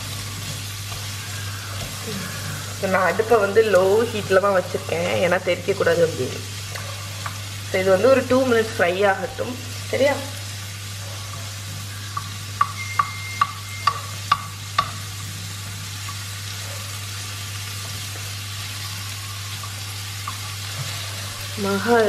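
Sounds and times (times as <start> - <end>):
onions sizzling in oil: 0.0 - 22.0
wooden spoon knocking pan: 12.1 - 15.1.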